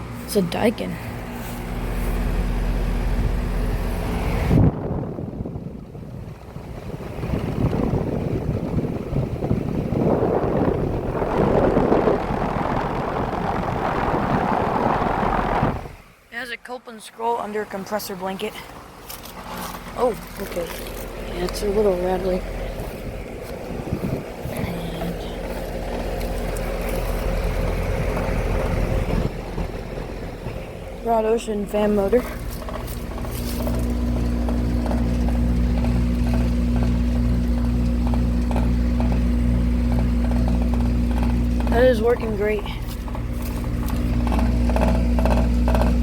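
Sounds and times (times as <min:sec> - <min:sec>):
air conditioner fan blowing: 0:00.0 - 0:46.0
compressor humming: 0:00.0 - 0:46.0
wind buffeting microphone: 0:01.0 - 0:16.1, 0:21.1 - 0:46.0
light rattle: 0:31.7 - 0:46.0.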